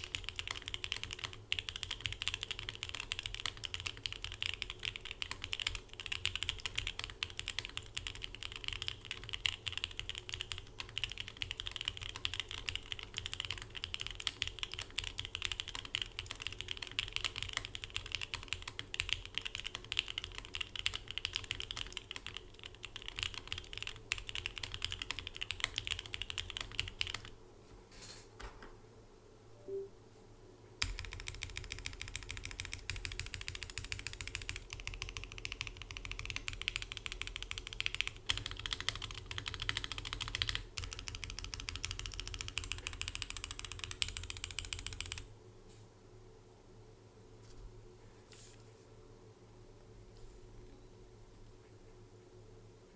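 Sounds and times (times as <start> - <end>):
typing on mechanical keyboard: 0.0 - 27.4, 30.8 - 45.3.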